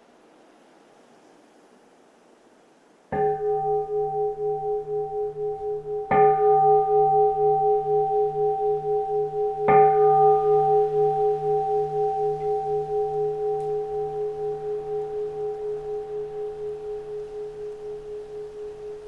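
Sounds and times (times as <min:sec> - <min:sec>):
bowl bell ringing: 0:03.2 - 0:19.0.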